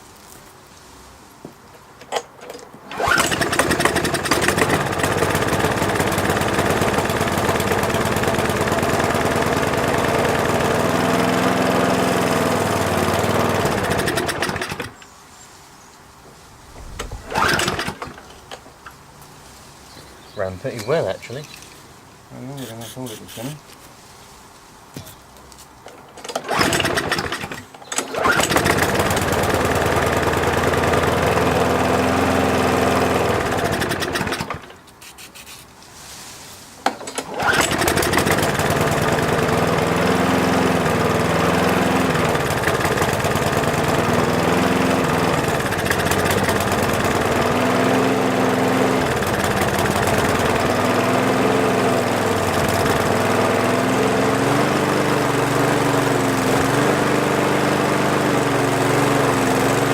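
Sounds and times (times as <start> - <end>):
lawn mower engine running: 2.0 - 15.1, 16.7 - 19.0, 25.8 - 34.8, 36.8 - 59.9.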